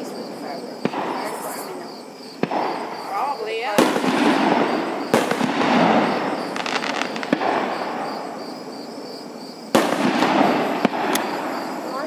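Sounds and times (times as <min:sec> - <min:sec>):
crickets chirping: 0:00.0 - 0:12.0
crackling firework pops: 0:00.8 - 0:01.7, 0:02.4 - 0:08.2, 0:09.7 - 0:11.7.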